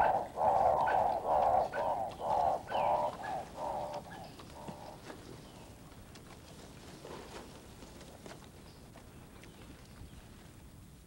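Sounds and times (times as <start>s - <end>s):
bird calling hoarse notes: 0.0s - 5.0s.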